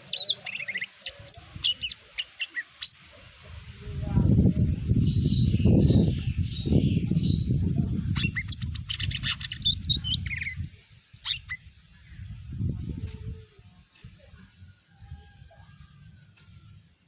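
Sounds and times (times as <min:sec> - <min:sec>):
bird singing chirps and trills: 0:00.0 - 0:03.0, 0:04.9 - 0:12.3.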